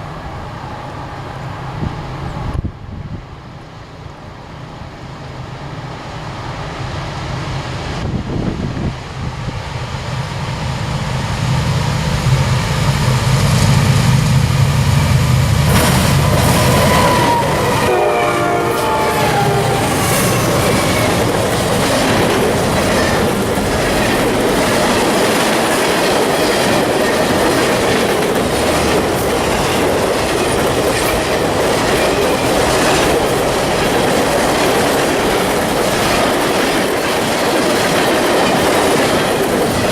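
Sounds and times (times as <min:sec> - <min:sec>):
diesel locomotive engines droning: 0:00.0 - 0:39.9
train air horn: 0:15.7 - 0:21.2
wheels clicking over rail joints: 0:19.6 - 0:39.9.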